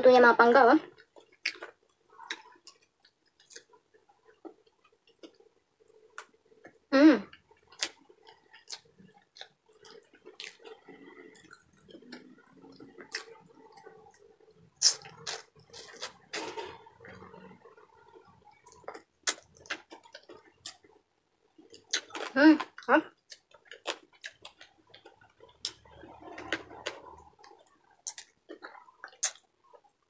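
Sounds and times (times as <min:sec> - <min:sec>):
wet chewing and lip-smacking: 0:07.4 - 0:16.4, 0:17.2 - 0:21.0, 0:21.6 - 0:30.0.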